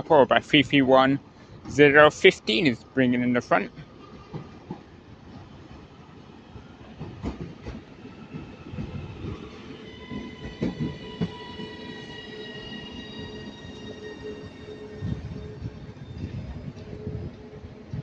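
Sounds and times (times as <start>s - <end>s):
train wheels knocking over rail joints: 7.0s - 9.5s, 10.1s - 11.8s
train motor whine: 8.7s - 18.0s.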